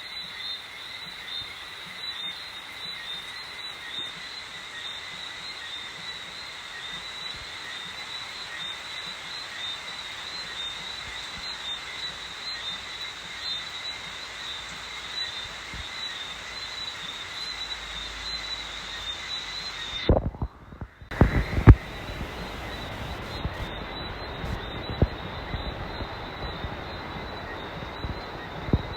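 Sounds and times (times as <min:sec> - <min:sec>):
frogs calling: 0:00.0 - 0:28.9
even hiss: 0:21.1 - 0:28.9.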